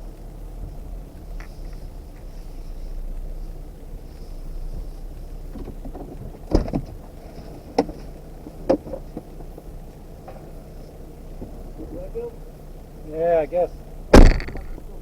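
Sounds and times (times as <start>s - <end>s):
vehicle engine running: 0.0s - 15.0s
sharp knocks: 14.1s - 15.0s.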